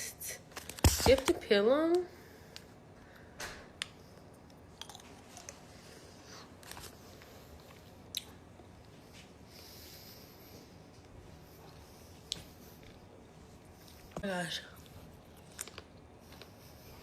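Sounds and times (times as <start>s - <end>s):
chewing: 4.4s - 5.6s, 13.8s - 16.6s.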